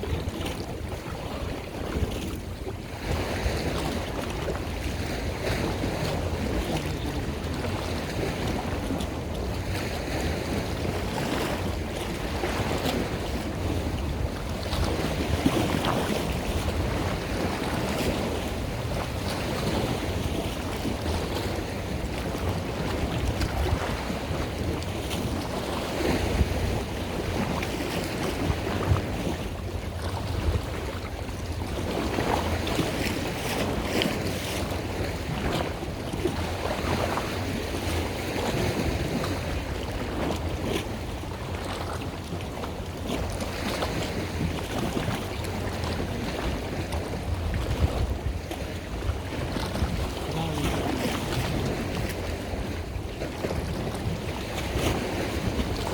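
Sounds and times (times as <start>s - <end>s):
wind buffeting microphone: 0.0s - 55.9s
water washing: 49.7s - 52.1s.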